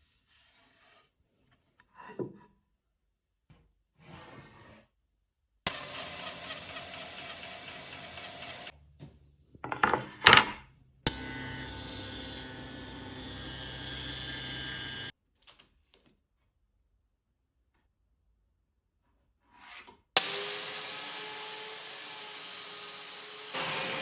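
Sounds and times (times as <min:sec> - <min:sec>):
woodworking power tool running: 0:05.7 - 0:08.7, 0:11.1 - 0:15.1, 0:20.2 - 0:24.0.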